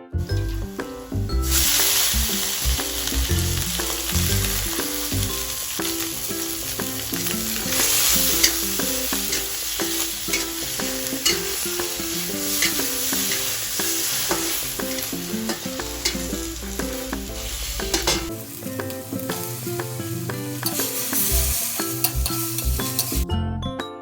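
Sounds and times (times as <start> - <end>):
food sizzling in a pan: 0.2 - 23.2
utensil clicking against pan: 6.7 - 23.2.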